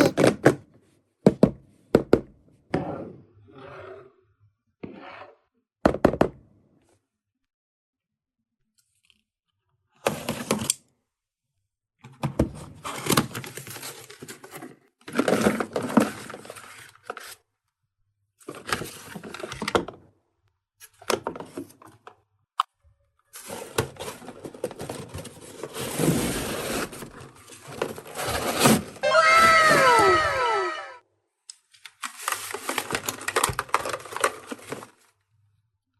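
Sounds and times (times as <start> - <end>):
plastic packaging crinkling and tearing: 31.8 - 35.1.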